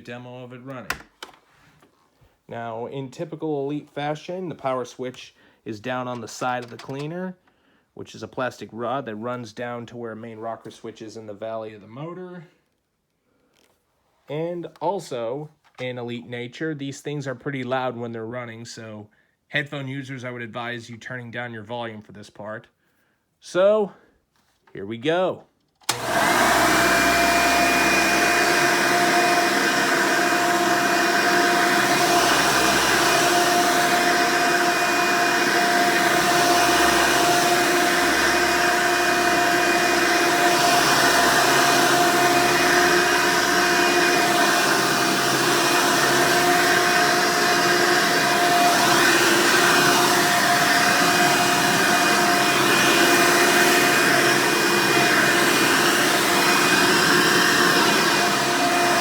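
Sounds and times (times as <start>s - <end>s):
vacuum cleaner motor whine: 25.9s - 59.0s.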